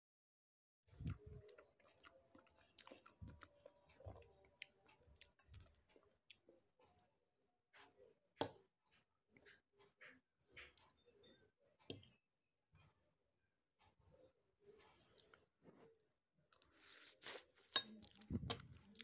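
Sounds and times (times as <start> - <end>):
close chewing: 0.9 - 7.0, 16.5 - 19.0.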